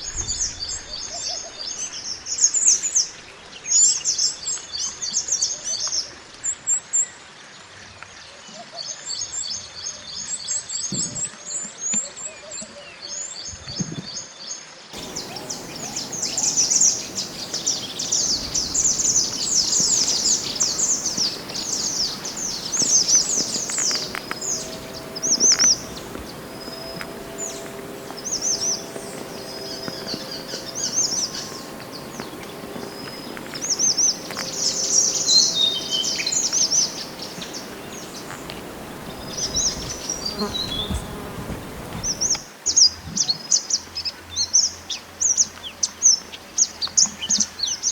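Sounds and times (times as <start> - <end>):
songbird singing rapid chirps: 15.0 - 42.4.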